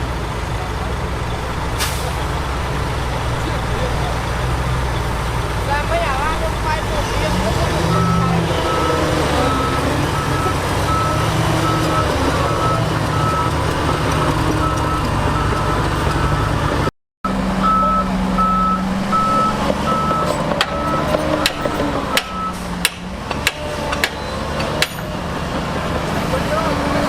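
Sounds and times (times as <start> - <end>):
big engine running: 0.0 - 27.0
backup alarm beeping: 7.8 - 16.6.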